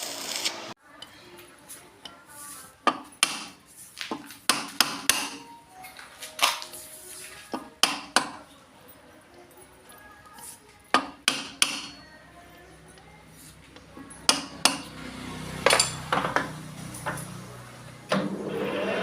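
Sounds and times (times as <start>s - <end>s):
metal knocks and clanks: 15.6s - 17.4s.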